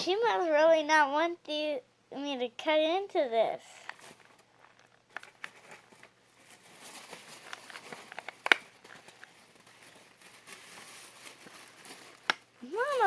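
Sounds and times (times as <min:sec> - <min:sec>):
handling rustles: 0:03.7 - 0:13.0.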